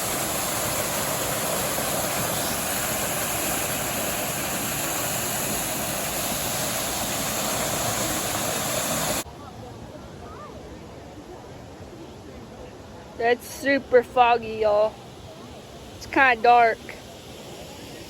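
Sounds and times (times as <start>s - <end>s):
waterfall rushing: 0.0s - 9.3s.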